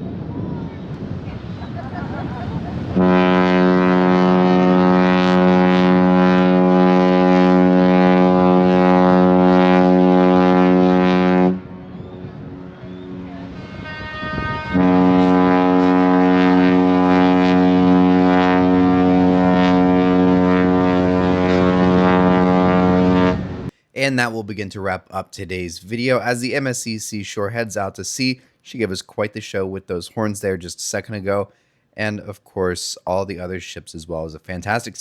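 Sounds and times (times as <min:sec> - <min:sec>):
deep ship horn blasts: 0:02.8 - 0:23.7.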